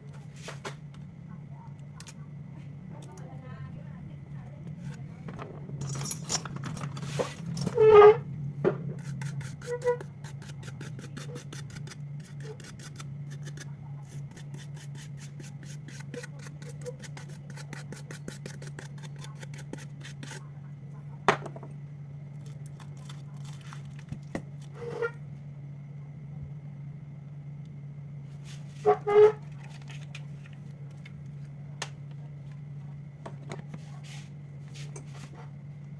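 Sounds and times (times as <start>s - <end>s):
steady low hum: 0.0s - 35.9s
small tools clicking and scraping: 9.0s - 20.4s.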